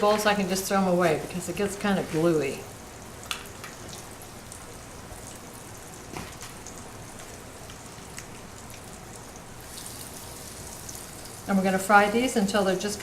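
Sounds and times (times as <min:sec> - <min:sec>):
oil popping and crackling: 0:03.1 - 0:11.5
steaks sizzling in oil: 0:09.6 - 0:11.6.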